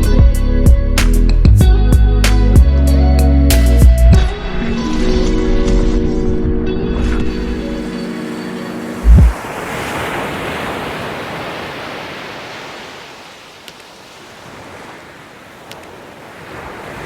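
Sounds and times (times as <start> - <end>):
deep thump: 9.0 - 9.4
rushing noise: 9.0 - 9.7.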